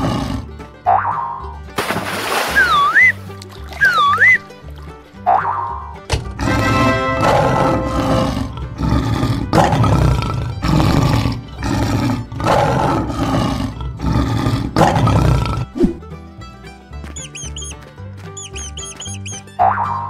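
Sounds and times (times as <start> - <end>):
lion roaring: 0.0 - 0.5, 6.3 - 15.8.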